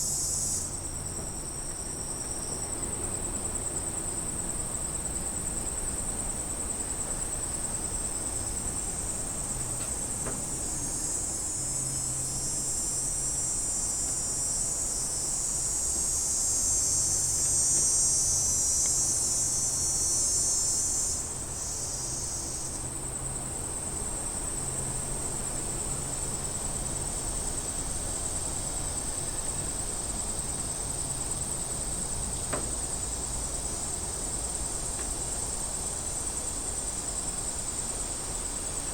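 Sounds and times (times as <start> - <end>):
cicadas buzzing: 0.0 - 38.9.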